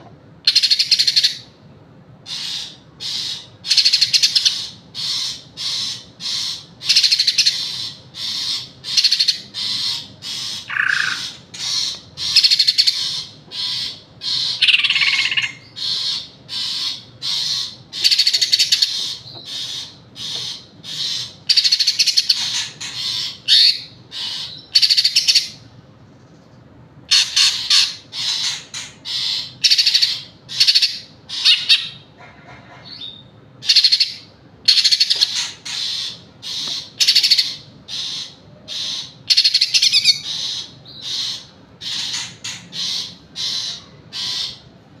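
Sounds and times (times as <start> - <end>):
bird singing fast phrases: 2.4 - 25.6, 32.9 - 44.7.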